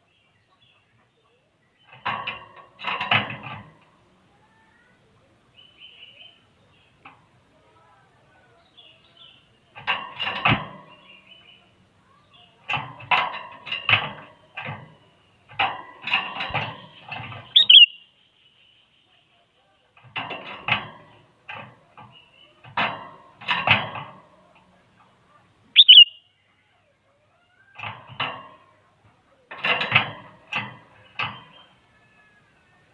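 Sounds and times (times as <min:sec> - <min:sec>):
bulbul singing: 0:16.8 - 0:19.1, 0:25.7 - 0:26.4.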